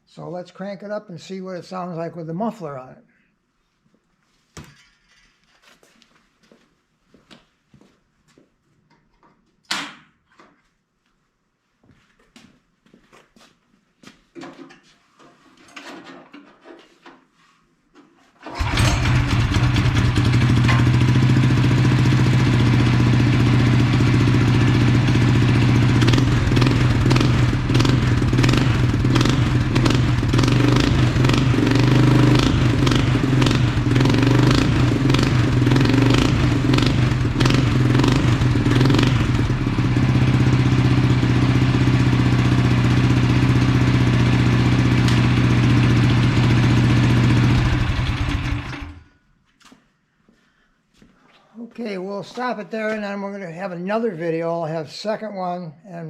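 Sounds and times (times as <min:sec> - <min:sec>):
small engine running: 0:18.6 - 0:49.0.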